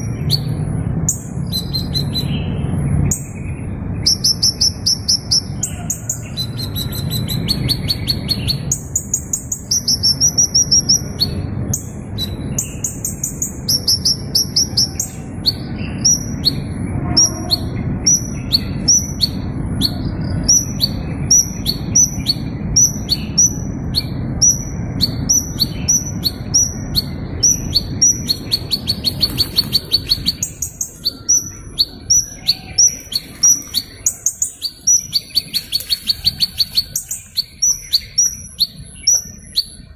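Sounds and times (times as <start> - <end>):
small bird singing: 0.0 - 39.9
steady low rumble: 0.0 - 39.9.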